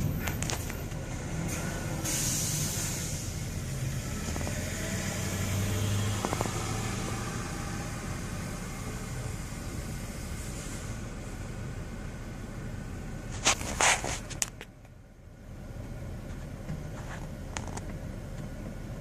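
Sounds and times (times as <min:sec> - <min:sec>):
truck engine idling low: 0:00.0 - 0:05.0, 0:05.9 - 0:13.4
hiss burst: 0:01.5 - 0:03.6.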